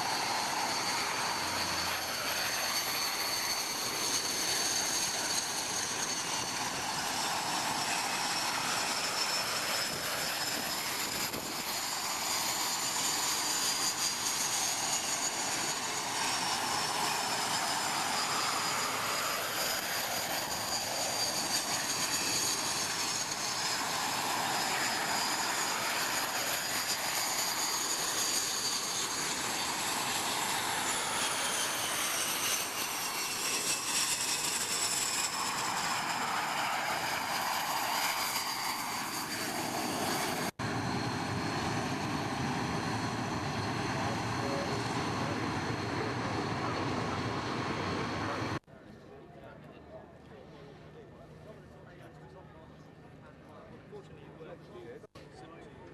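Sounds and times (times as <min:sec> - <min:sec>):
aircraft engine noise: 0:00.0 - 0:48.6
high whining tones: 0:00.0 - 0:48.6.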